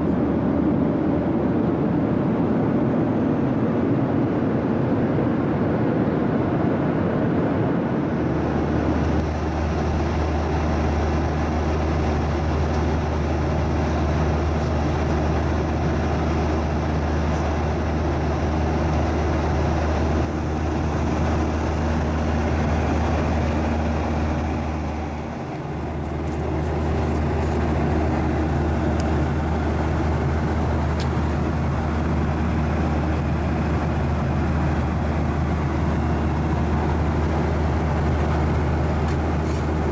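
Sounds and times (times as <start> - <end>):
jet cabin roar: 7.7 - 39.9.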